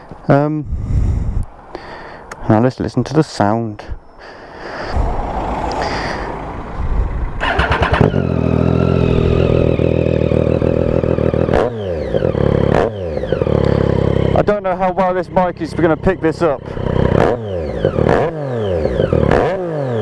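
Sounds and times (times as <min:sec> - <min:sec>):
motorcycle throttle blips: 0:06.5 - 0:20.0
motorcycle engine idling loudly: 0:07.4 - 0:19.4.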